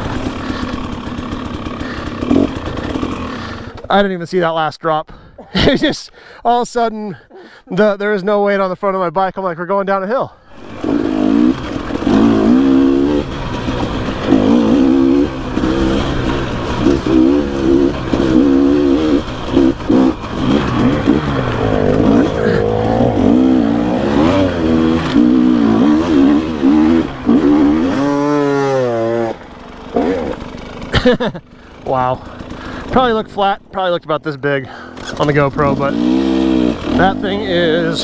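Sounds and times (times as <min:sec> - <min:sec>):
dirt bike engine revving: 0:00.0 - 0:03.9, 0:10.5 - 0:33.8, 0:34.6 - 0:38.0.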